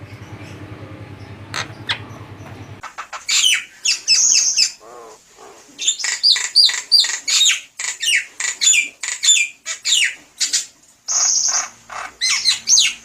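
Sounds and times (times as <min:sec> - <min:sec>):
bird harsh squawks: 0:01.5 - 0:02.2, 0:02.8 - 0:13.0.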